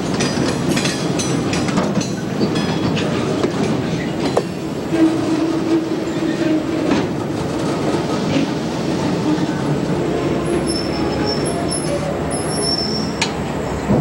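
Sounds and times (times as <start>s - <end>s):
train wheels rumbling on rail: 0.0s - 14.0s
high-pitched wheel squeal: 10.4s - 13.3s.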